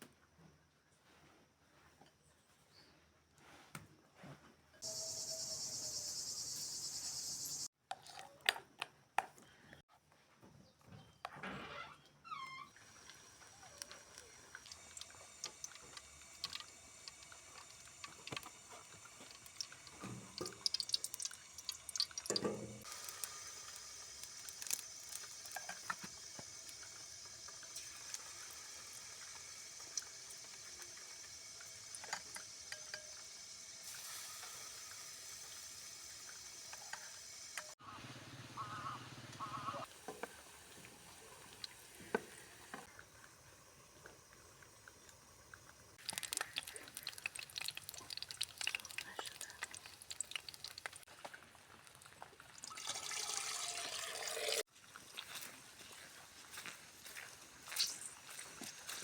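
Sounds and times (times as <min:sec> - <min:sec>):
water dripping and trickling: 0:12.7 - 0:37.8, 0:39.9 - 0:59.0.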